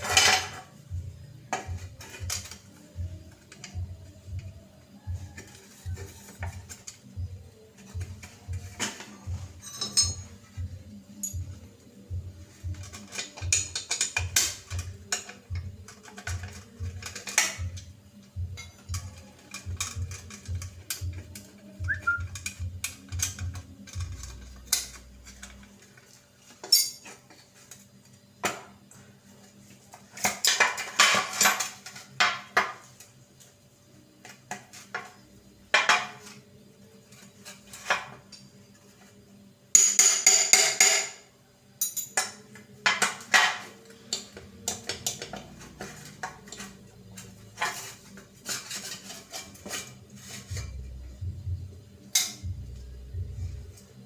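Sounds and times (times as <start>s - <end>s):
metal parts clinking and knocking: 0.0s - 0.7s, 8.7s - 10.4s, 26.6s - 27.2s.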